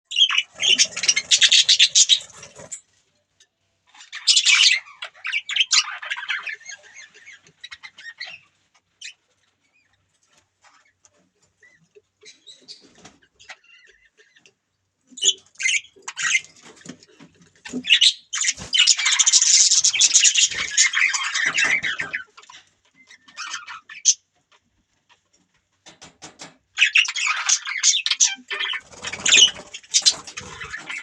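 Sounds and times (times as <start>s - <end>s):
budgerigars squawking: 0.1s - 2.8s, 4.0s - 8.4s, 17.6s - 24.2s, 26.8s - 31.0s.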